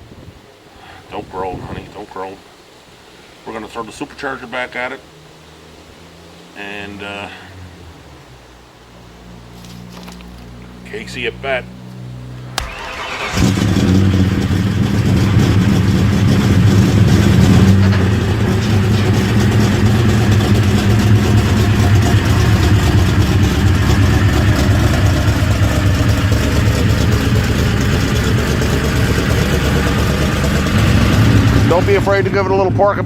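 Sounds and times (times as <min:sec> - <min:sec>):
car engine running loud: 0:10.8 - 0:33.0.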